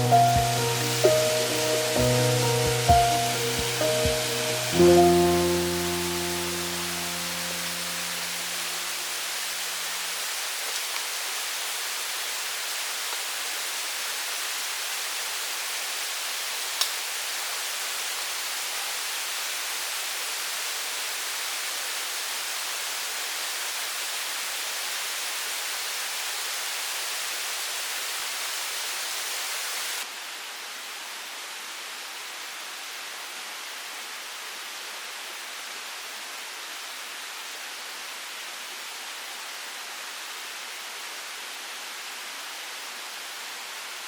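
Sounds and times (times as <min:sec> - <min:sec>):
background music: 0:00.0 - 0:08.9
mountain stream rushing: 0:00.0 - 0:30.1.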